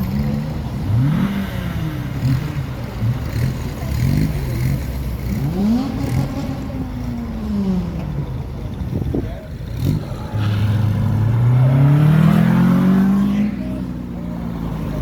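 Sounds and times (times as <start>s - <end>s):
car engine revving: 9.6s - 15.0s.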